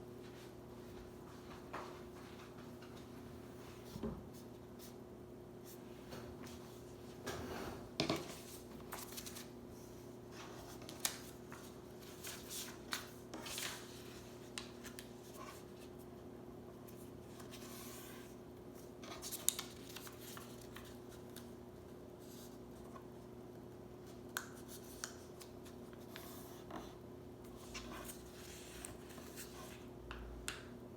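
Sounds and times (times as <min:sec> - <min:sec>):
paper rustling and crinkling: 0:08.2 - 0:16.0, 0:16.9 - 0:21.5, 0:27.5 - 0:29.9.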